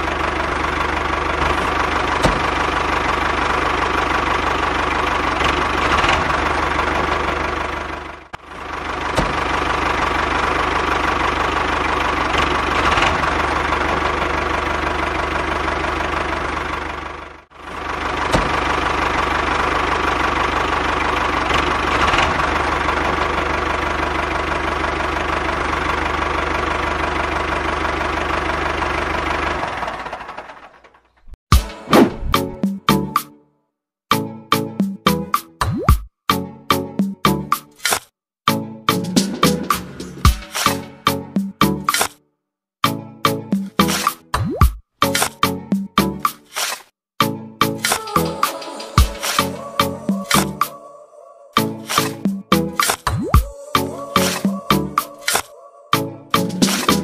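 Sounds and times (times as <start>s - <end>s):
small tractor engine chugging: 0.0s - 31.4s.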